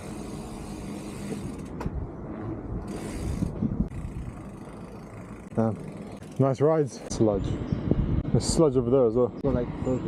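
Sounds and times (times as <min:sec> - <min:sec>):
bike rattling over rough ground: 0:00.0 - 0:07.1.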